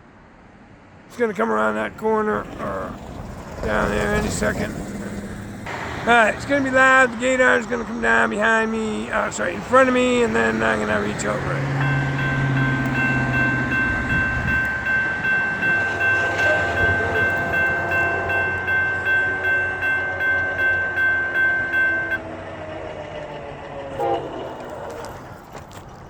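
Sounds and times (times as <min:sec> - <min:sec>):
crossing warning bell ringing: 0:03.6 - 0:25.5
train horn: 0:15.5 - 0:22.9, 0:23.6 - 0:25.4.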